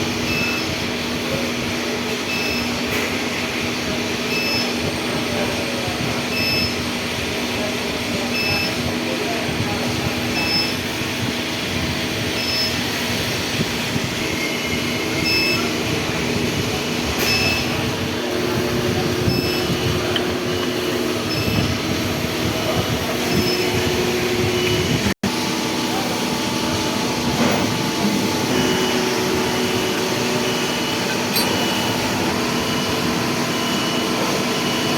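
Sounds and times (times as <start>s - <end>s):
lathe cutting metal: 25.5s - 34.9s.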